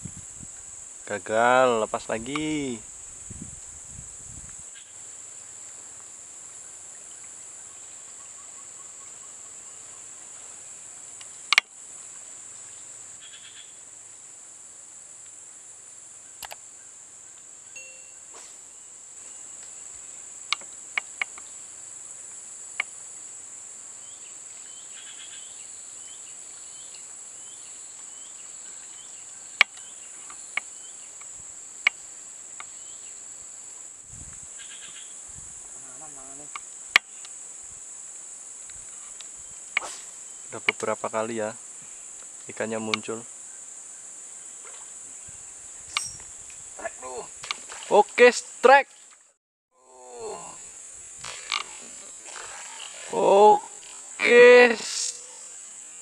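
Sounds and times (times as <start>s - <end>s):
sharp clicks: 16.4s - 16.6s
high-pitched insect drone: 34.5s - 48.8s, 49.8s - 56.0s.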